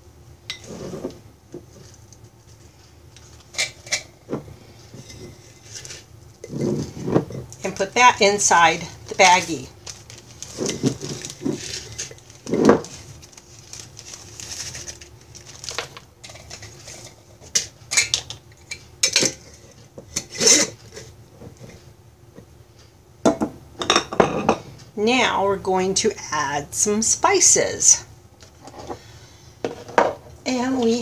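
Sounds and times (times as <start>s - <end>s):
plastic bag rustling: 0.6s - 7.9s, 8.6s - 17.6s.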